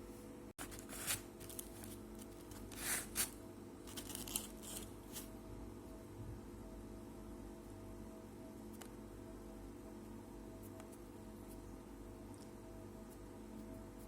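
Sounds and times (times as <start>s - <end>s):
steady low hum: 0.0s - 14.0s
rustling crinkling handling noises: 0.6s - 5.3s.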